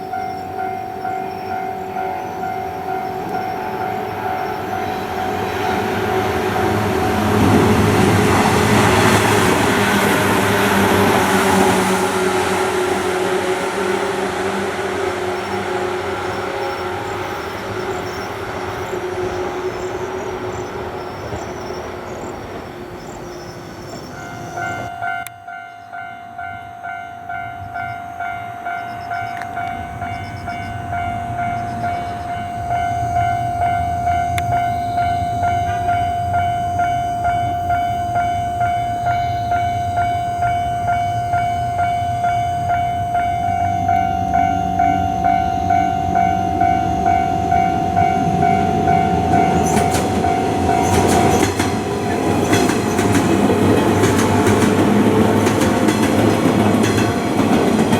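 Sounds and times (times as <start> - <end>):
train rail noise: 0.0 - 57.9
pulsing ringing tone: 24.2 - 51.4.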